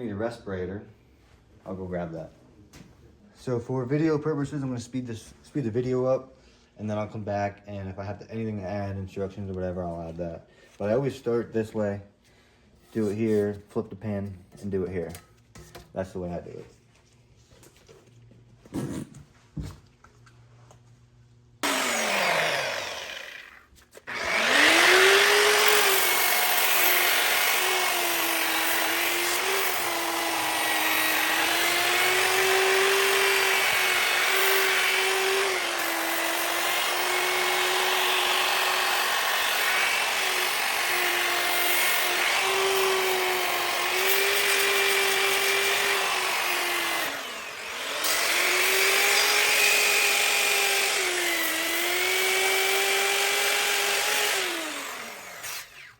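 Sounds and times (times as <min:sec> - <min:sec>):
grinder motor whine: 0:21.6 - 0:55.9.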